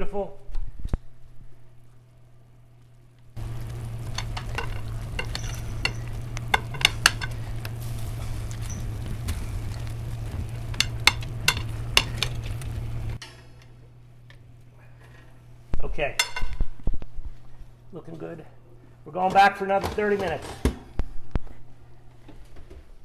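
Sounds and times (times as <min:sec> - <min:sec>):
chicken pieces sizzling: 0:03.4 - 0:13.2
steady low hum: 0:03.4 - 0:13.2
utensil clicking against dish: 0:03.4 - 0:13.2.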